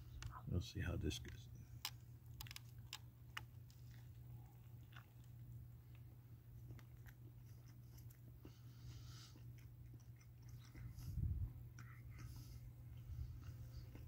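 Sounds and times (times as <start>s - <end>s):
faint chewing: 1.2s - 14.0s.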